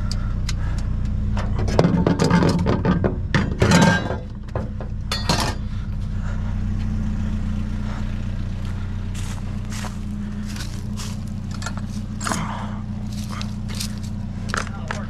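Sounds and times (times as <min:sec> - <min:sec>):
vehicle engine running: 0:00.0 - 0:15.0
metallic clanks and clinks: 0:01.4 - 0:05.7, 0:11.5 - 0:12.4.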